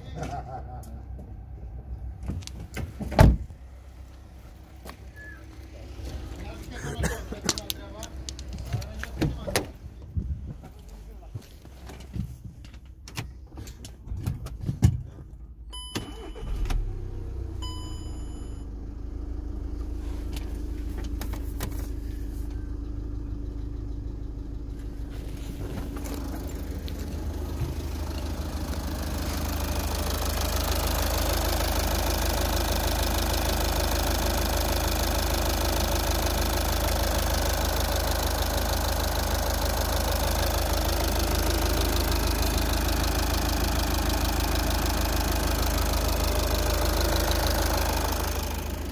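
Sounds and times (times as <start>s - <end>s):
diesel engine idling: 0.0s - 11.6s, 15.8s - 48.9s
short electronic beeps: 15.7s - 16.6s, 17.6s - 18.7s.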